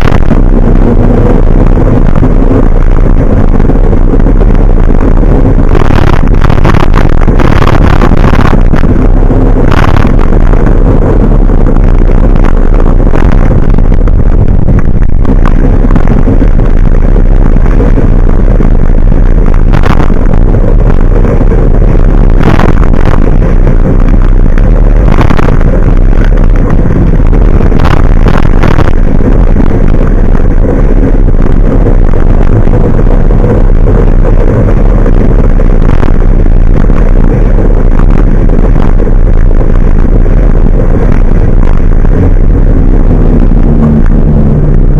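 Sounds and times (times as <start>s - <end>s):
short rushes of noise: 0.0s - 44.9s
vehicle engine and road rumble: 0.0s - 44.9s.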